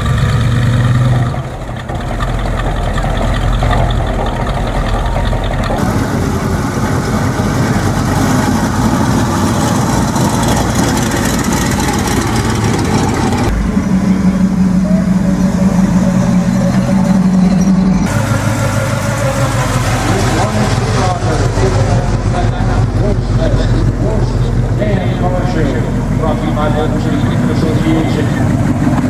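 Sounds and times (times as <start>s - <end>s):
car engines idling: 0.0s - 29.0s
faint voices: 13.5s - 29.0s.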